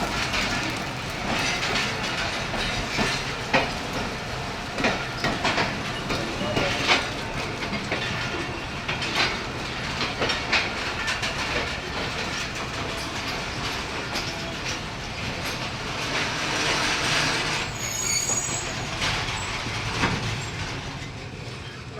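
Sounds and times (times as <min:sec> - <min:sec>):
train wheels clacking over rail joints: 0:00.0 - 0:21.9
metallic wheel squeal: 0:16.6 - 0:20.6.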